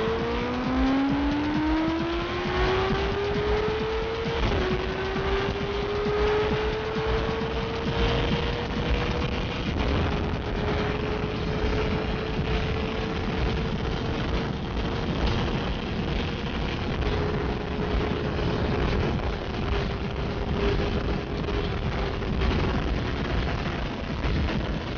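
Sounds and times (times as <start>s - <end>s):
motorcycle engine at high revs: 0.0s - 24.9s
wind rush on microphone: 0.0s - 24.9s.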